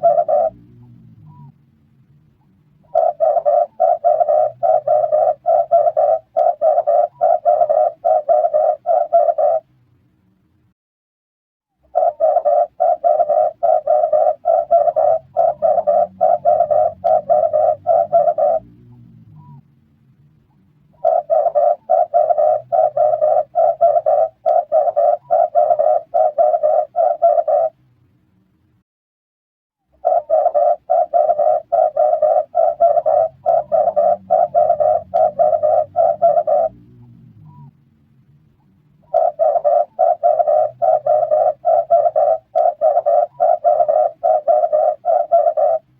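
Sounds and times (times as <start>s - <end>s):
dove cooing rapidly: 0.0s - 1.5s, 2.8s - 9.7s, 11.9s - 19.6s, 20.9s - 27.8s, 30.0s - 37.7s, 39.0s - 45.9s.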